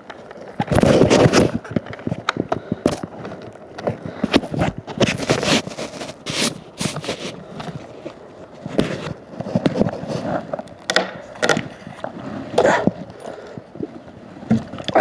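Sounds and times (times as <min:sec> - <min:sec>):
knocks clatters and scrapes: 0:04.9 - 0:07.4.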